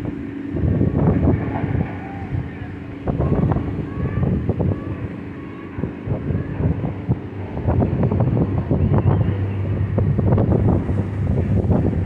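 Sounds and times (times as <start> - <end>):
low steady hum: 0.0 - 12.0
wind buffeting microphone: 0.0 - 12.0.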